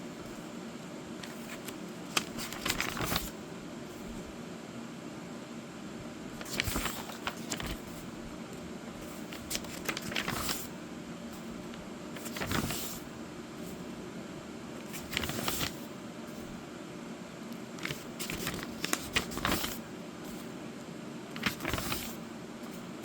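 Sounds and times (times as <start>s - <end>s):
steady low hum: 0.0s - 23.0s
book pages turning: 1.2s - 3.4s, 6.4s - 8.1s, 9.0s - 10.7s, 11.4s - 13.8s, 14.8s - 16.5s, 17.6s - 20.5s, 21.3s - 22.8s.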